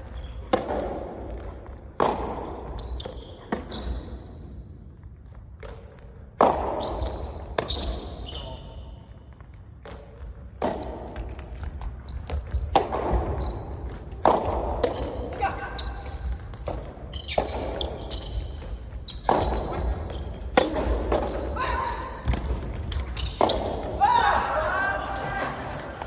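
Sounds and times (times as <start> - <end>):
ball bouncing on court: 0.0 - 26.0
tennis ball struck by rackets: 1.4 - 2.4, 19.2 - 21.3.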